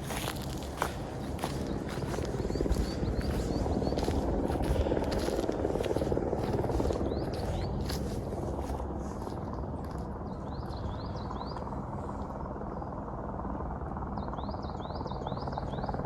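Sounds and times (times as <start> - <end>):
steady low drone: 0.0 - 16.0
small bird chirping: 0.1 - 4.8, 6.4 - 8.7.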